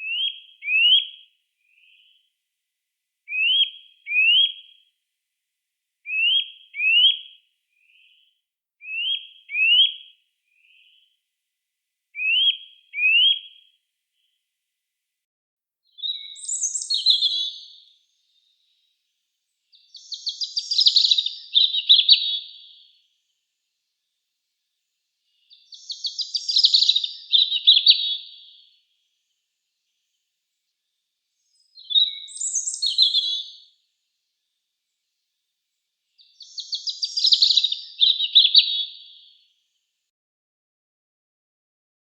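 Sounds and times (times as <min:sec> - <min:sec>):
songbirds whistling rising notes: 0:16.0 - 0:17.8, 0:19.7 - 0:22.8, 0:25.5 - 0:28.6, 0:31.5 - 0:33.6, 0:36.2 - 0:39.1
birds twittering: 0:19.8 - 0:22.9, 0:25.4 - 0:28.5, 0:31.6 - 0:33.6, 0:36.3 - 0:39.2.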